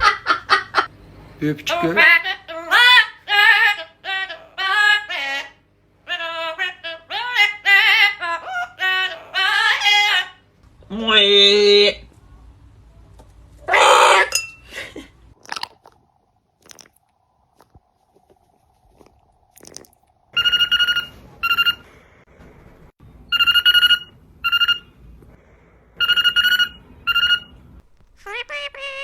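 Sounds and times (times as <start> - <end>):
telephone ringing: 20.4 - 21.9, 23.3 - 24.9, 26.0 - 27.6.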